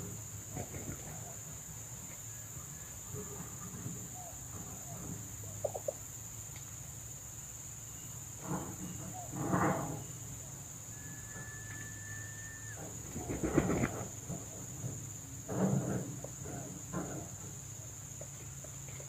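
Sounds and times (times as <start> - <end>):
insects droning: 0.0 - 19.0
thin whistle-like tone: 10.8 - 12.8.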